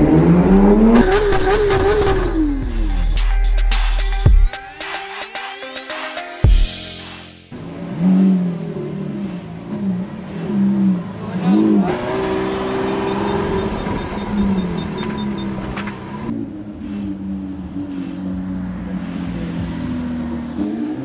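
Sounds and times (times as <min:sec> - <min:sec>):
car engine revving: 0:00.0 - 0:02.9, 0:07.5 - 0:21.0.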